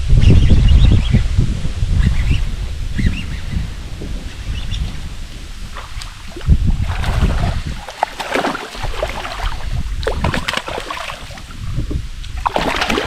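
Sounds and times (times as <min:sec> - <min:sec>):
wind rumbling on microphone: 0:00.0 - 0:13.0
water splashing and dripping: 0:04.1 - 0:13.0.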